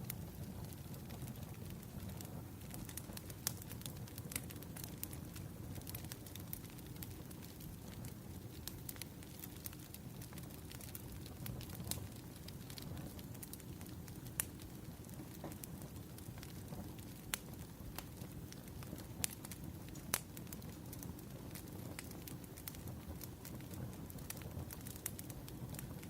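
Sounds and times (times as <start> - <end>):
wood fire crackling and popping: 0.0 - 26.0.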